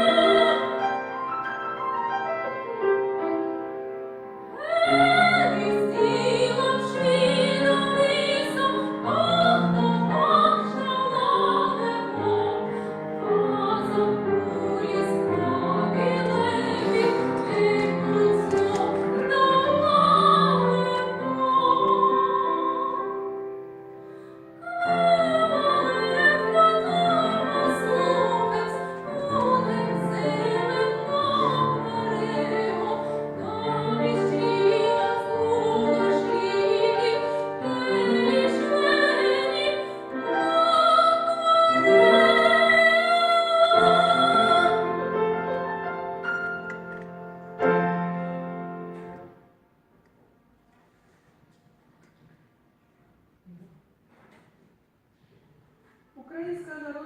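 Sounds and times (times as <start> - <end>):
woman singing operatically: 0.0 - 0.8, 4.6 - 23.2, 24.6 - 44.9
piano accompaniment: 0.0 - 50.5.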